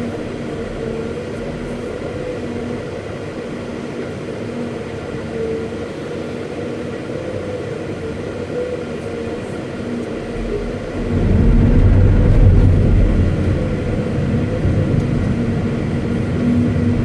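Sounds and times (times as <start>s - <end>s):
faint whine: 0.0s - 17.0s
excavator engine running: 9.7s - 17.0s.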